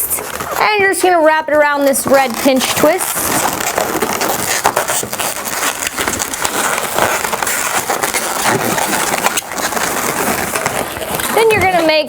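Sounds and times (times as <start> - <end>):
balloons squeaking and rubbing: 0.0 - 12.0.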